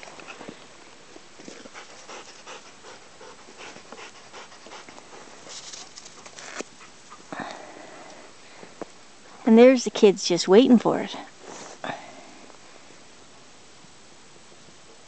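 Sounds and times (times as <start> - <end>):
dog panting: 1.5 - 7.3.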